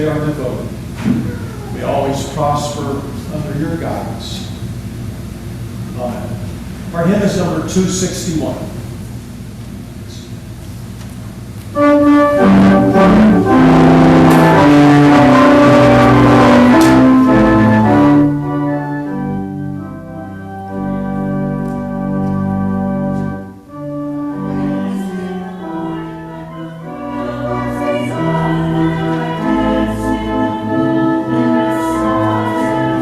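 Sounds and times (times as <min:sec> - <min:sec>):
church organ playing hymn: 0:00.0 - 0:04.6, 0:11.7 - 0:33.0.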